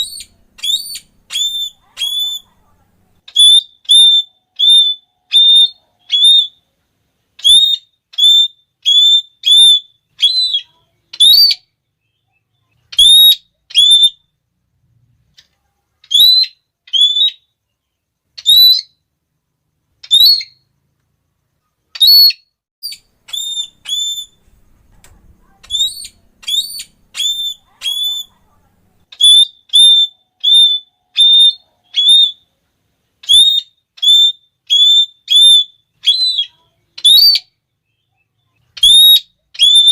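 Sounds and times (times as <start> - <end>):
parrot shrill calls: 0.0 - 2.5, 3.3 - 6.6, 7.4 - 11.7, 12.9 - 14.3, 16.0 - 17.5, 18.4 - 19.0, 20.0 - 20.6, 22.0 - 24.6, 25.5 - 28.4, 29.1 - 32.5, 33.2 - 37.6, 38.7 - 39.9.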